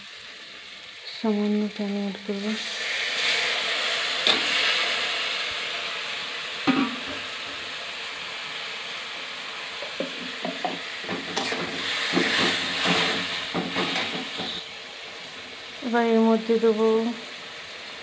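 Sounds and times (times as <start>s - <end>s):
masala sizzling in a pan: 0.0s - 18.0s
steel spatula scraping a pan: 11.1s - 14.6s.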